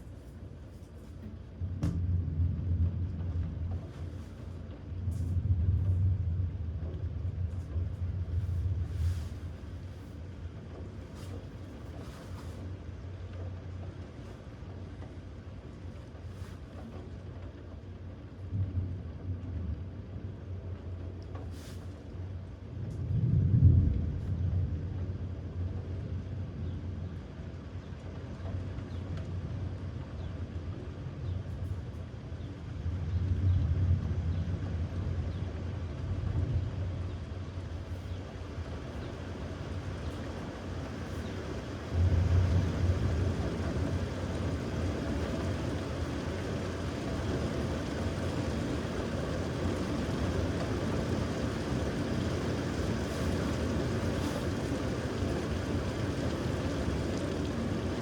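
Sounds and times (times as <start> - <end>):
thunder rumbling: 1.4 - 11.8, 22.4 - 27.7, 29.4 - 58.0.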